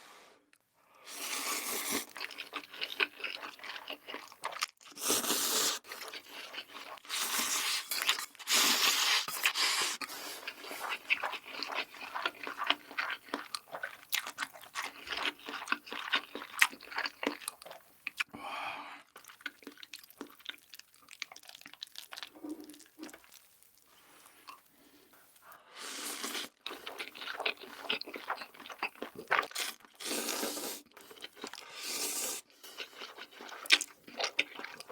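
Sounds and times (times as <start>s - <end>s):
chewing noodles with crunchy bites: 1.1s - 18.3s, 19.1s - 24.8s, 25.8s - 34.9s.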